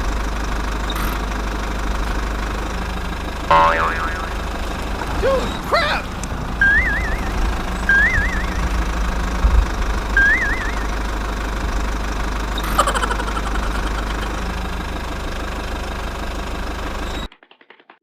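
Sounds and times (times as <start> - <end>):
small engine knocking rumble: 0.0 - 18.0
warbling whistle-like tones: 3.5 - 4.5, 6.6 - 8.9, 10.2 - 11.2.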